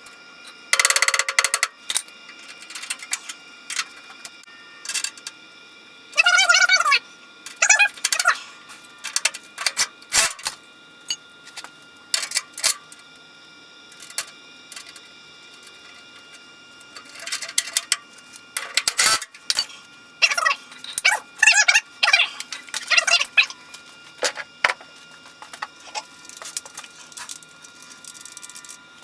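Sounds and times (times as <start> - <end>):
ratchet clicking: 0.8 - 3.9, 18.6 - 19.7.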